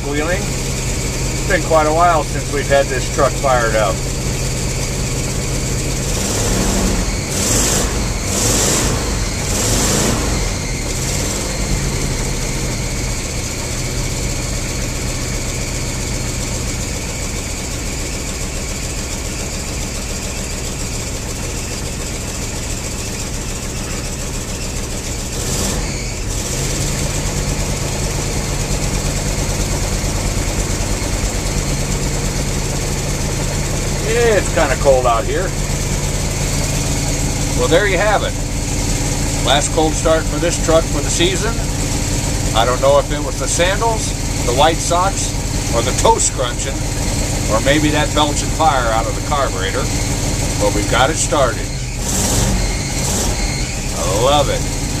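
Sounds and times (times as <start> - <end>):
engine revving and idling: 0.0 - 55.0.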